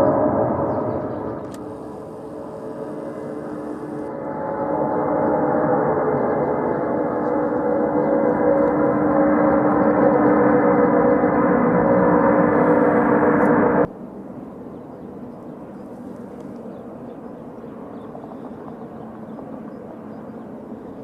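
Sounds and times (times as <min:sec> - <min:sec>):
aircraft engines droning: 0:00.0 - 0:21.0.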